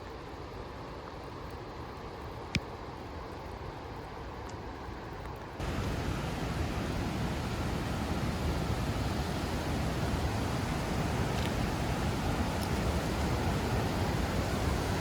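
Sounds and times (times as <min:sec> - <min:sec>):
waterfall roaring: 0:05.6 - 0:15.0.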